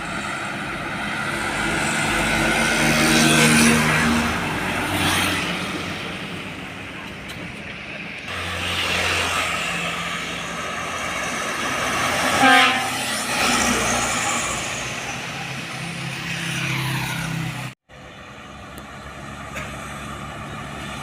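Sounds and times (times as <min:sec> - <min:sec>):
truck horn blast: 0:12.2 - 0:13.7.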